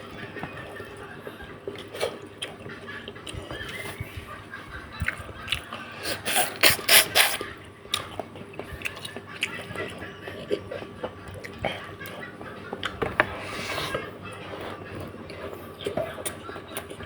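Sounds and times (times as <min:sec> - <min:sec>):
loud slurps: 0:06.0 - 0:07.4.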